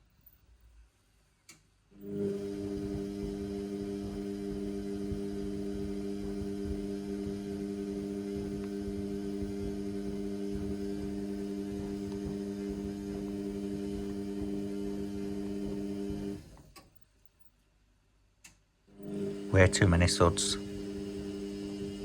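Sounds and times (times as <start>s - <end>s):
washing machine humming: 2.0s - 16.6s, 19.0s - 22.0s.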